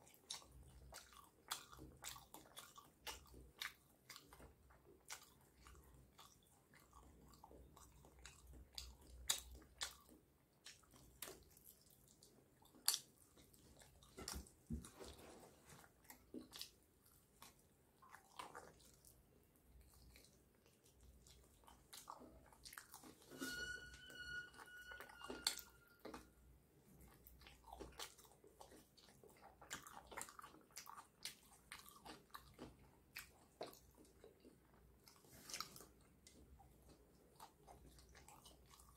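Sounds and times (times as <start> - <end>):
mouth clicks and smacks: 0.0 - 15.1
chewing and biting chicken: 0.0 - 23.2, 26.9 - 38.9
steady high tone: 23.2 - 26.4.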